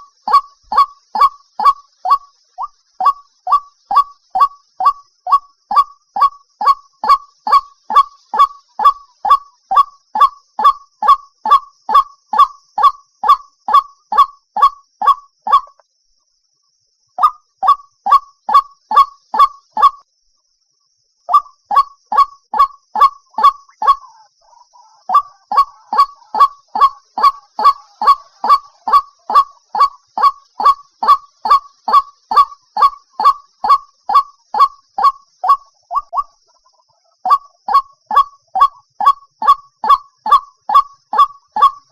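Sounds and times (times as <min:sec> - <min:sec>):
waterhen calling: 0:00.0 - 0:11.6, 0:21.3 - 0:41.9.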